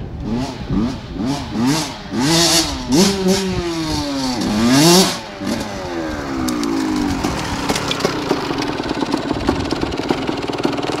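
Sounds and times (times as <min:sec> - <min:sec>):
motorcycle engine idling: 0:05.2 - 0:11.0
rapid uneven engine ticking: 0:06.5 - 0:11.0.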